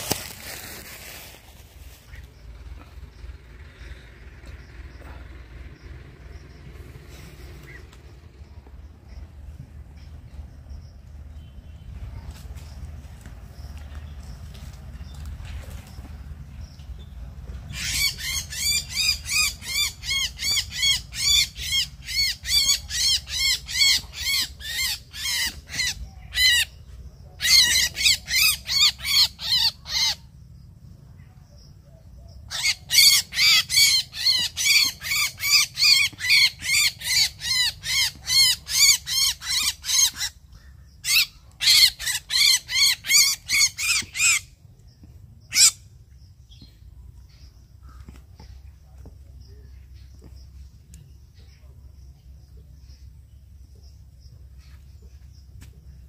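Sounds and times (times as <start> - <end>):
bird calling rapidly: 32.5 - 44.6, 45.4 - 45.9.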